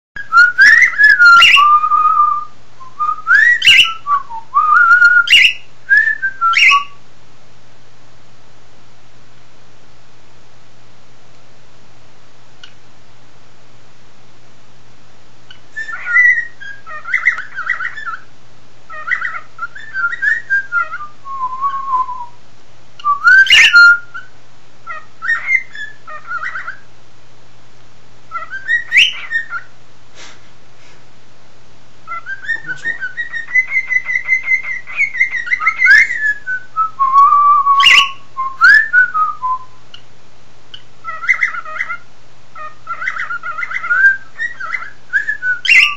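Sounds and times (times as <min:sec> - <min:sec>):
cockatiel whistling: 0:00.2 - 0:07.0, 0:15.5 - 0:18.3, 0:18.9 - 0:22.4, 0:23.0 - 0:24.3, 0:24.9 - 0:26.8, 0:28.3 - 0:29.7, 0:32.1 - 0:39.8, 0:41.0 - 0:42.0, 0:42.6 - 0:45.9
sharp bird chirps: 0:32.1 - 0:36.4.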